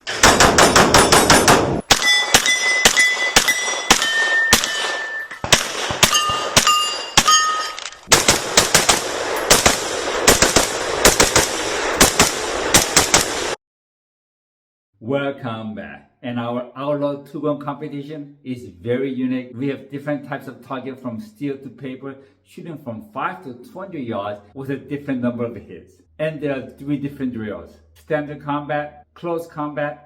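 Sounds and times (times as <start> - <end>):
rapid gunshots: 0.0 - 7.4, 8.1 - 13.6
steel targets ringing: 1.0 - 7.8.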